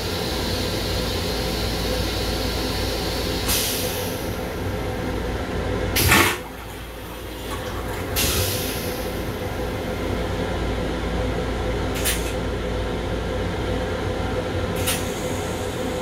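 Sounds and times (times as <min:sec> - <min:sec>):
train running rumble and hiss: 0:00.0 - 0:16.0.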